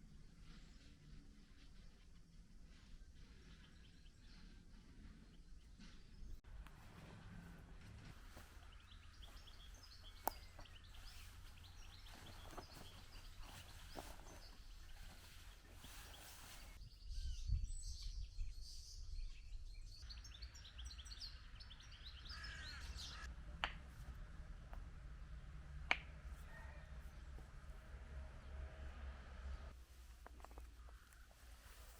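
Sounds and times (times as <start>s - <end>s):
birds chirping: 2.6s - 31.9s
low background rumble: 22.5s - 31.6s.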